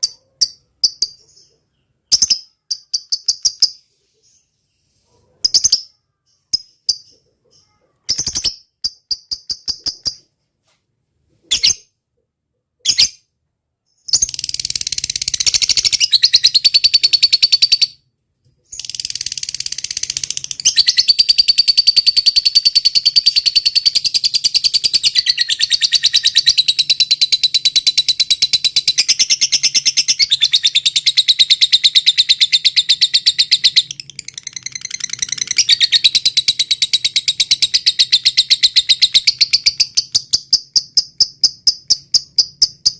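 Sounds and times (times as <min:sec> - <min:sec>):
bird chirping: 0:00.0 - 0:10.4, 0:11.3 - 0:42.9.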